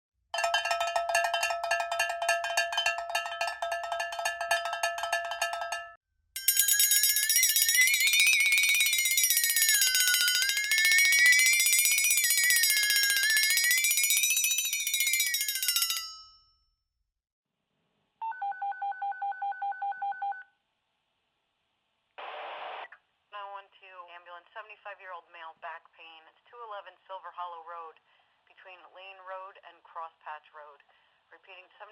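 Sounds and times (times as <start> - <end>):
metal bell ringing rapidly: 0.4 - 16.3.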